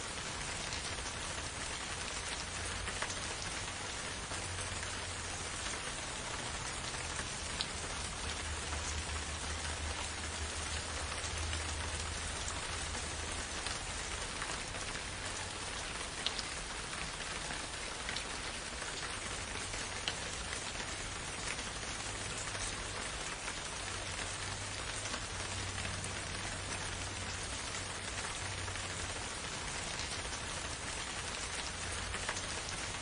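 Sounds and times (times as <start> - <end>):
raindrops ticking close by: 0.0 - 33.0
steady rain hiss: 0.0 - 33.0.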